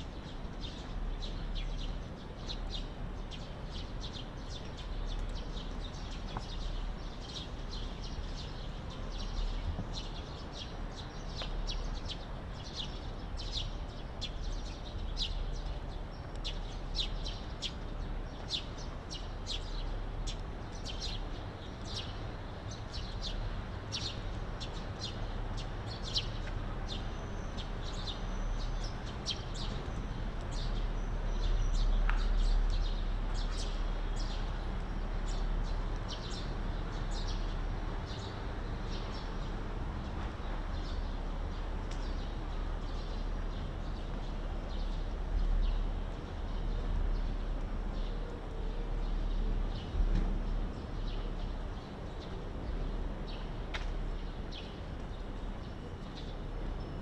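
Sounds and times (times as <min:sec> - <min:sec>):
small birds chirping: 0:00.0 - 0:50.0.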